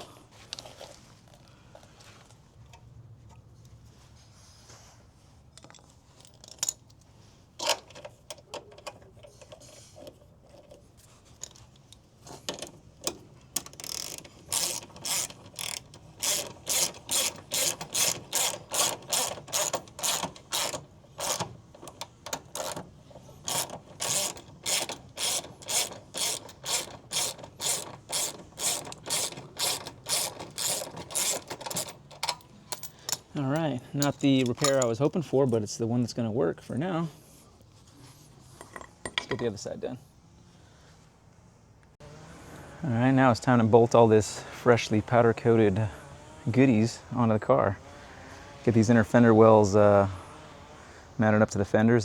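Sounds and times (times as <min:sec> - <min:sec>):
ratchet wrench clicking: 0:13.1 - 0:22.8, 0:23.5 - 0:33.2.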